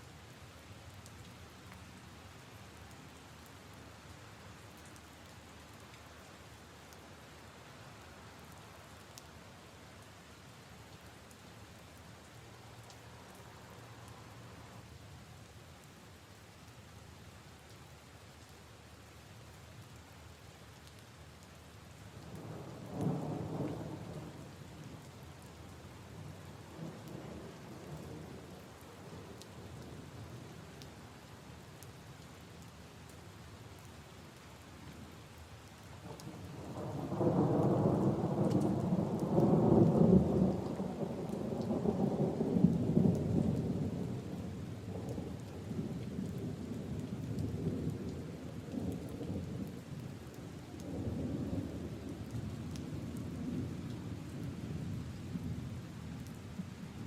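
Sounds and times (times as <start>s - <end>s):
rain falling on puddles and leaves: 0.0s - 57.0s.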